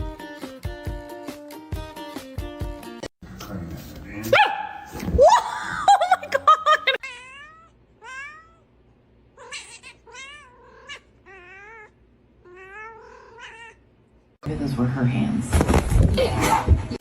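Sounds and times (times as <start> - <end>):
cat meowing: 7.0 - 8.7, 9.4 - 13.8.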